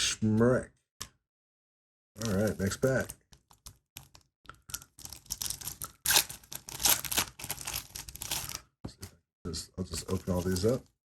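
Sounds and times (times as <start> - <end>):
wrapper tearing and crinkling: 2.2 - 3.1, 4.0 - 8.6, 10.0 - 10.9.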